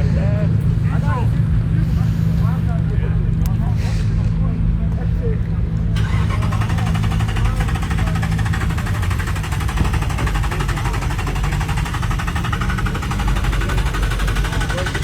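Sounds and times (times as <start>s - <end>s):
car engine running: 5.2s - 15.0s.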